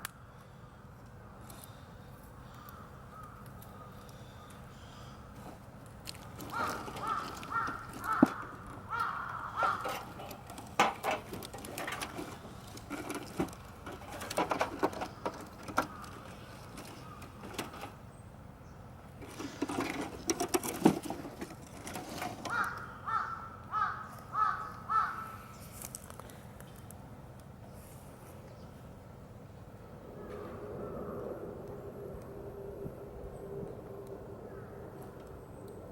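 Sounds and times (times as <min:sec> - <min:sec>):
crows cawing: 0:02.4 - 0:05.3, 0:06.4 - 0:10.5, 0:15.8 - 0:17.4, 0:22.4 - 0:25.6, 0:34.5 - 0:34.8
sharp cracks and knocks: 0:05.8 - 0:18.0.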